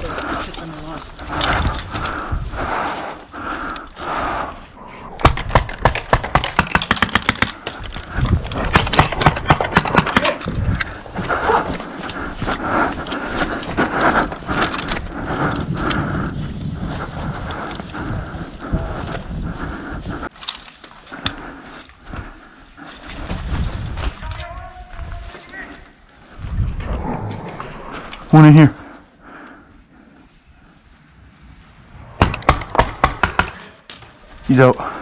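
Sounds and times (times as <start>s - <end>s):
rapid gunshots: 5.1s - 7.6s, 8.6s - 10.4s, 32.2s - 33.6s.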